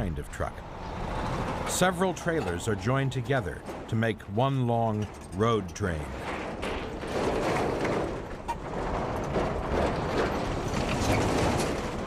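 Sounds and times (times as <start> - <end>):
road noise: 0.0 - 6.6
heavy truck engine: 0.0 - 12.0.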